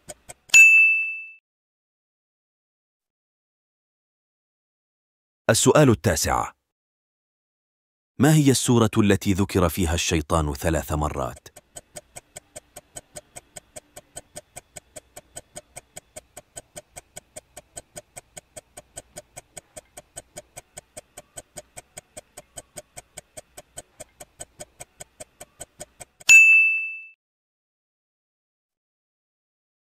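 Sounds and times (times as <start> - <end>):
clock-like ticking: 0.0 - 0.5, 9.9 - 26.3
loud ding: 26.3 - 27.2.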